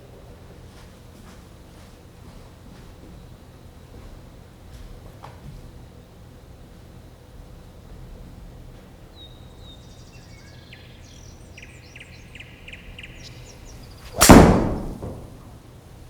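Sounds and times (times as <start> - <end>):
golf club striking ball: 13.8 - 15.6.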